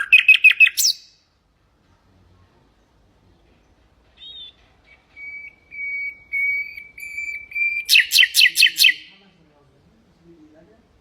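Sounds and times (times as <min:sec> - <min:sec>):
nightingale singing: 0:00.0 - 0:01.3, 0:04.2 - 0:09.2.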